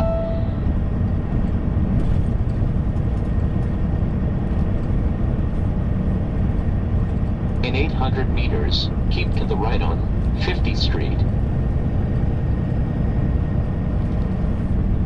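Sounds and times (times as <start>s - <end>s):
two-note falling chime: 0.0s - 0.7s
truck engine and road rumble: 0.0s - 15.0s.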